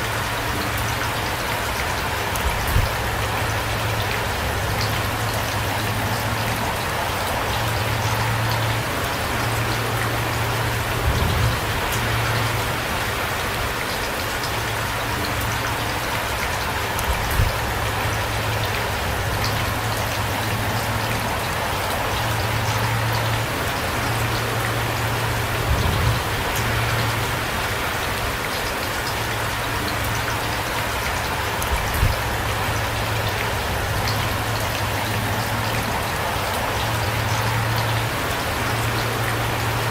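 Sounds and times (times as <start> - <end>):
heavy rain falling: 0.0 - 39.9
low rumble: 10.2 - 12.9.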